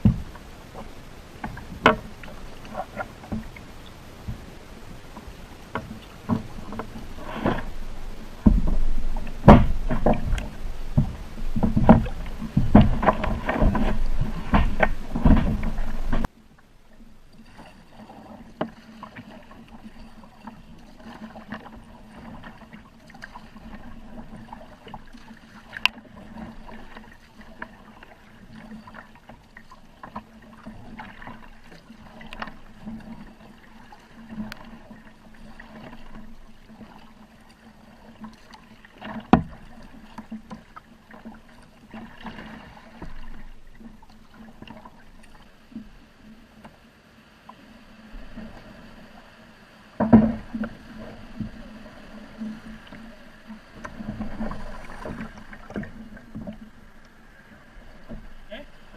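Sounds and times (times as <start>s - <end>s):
water splashing from paddle strokes: 0.0s - 58.9s
sharp knocks: 8.4s - 10.4s.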